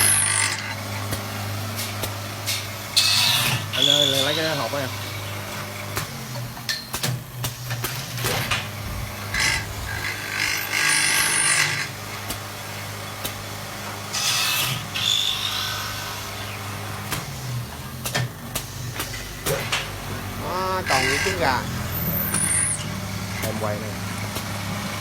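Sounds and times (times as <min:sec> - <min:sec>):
rasping wood cutting: 0:00.0 - 0:00.8, 0:02.9 - 0:05.2, 0:09.2 - 0:12.4, 0:14.0 - 0:17.6, 0:18.6 - 0:25.0
lathe motor hum: 0:08.7 - 0:18.0, 0:19.1 - 0:25.0.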